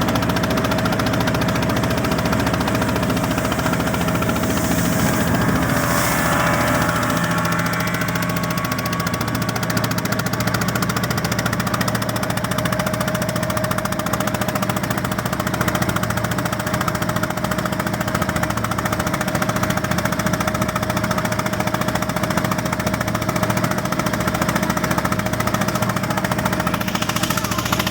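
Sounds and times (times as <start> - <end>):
boat engine hammering pulse: 0.0 - 14.2, 25.0 - 27.9.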